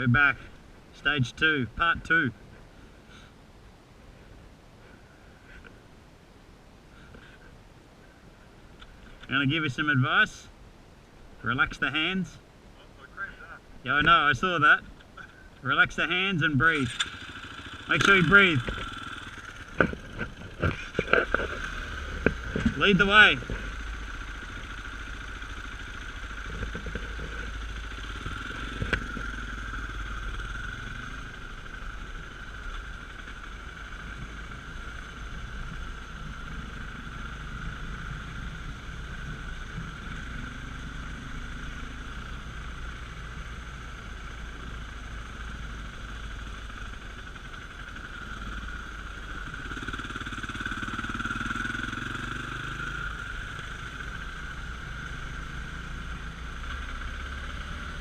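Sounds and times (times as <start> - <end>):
dirt bike engine: 13.0 - 58.0.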